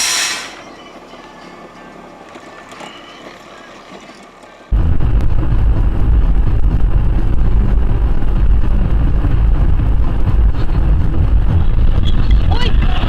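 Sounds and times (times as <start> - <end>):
road rumble inside car: 4.4 - 13.0
wind noise: 4.7 - 13.0.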